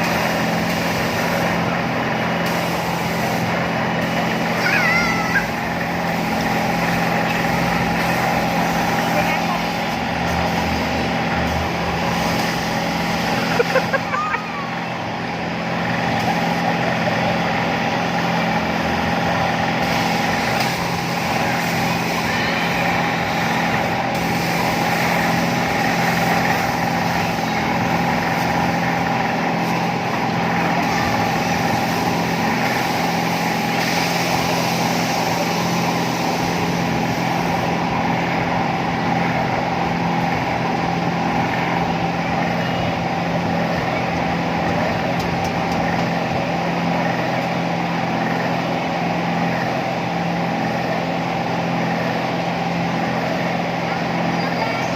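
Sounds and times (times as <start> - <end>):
amusement ride mechanical hum: 0.0 - 54.9
constant mechanical whine: 0.0 - 54.9.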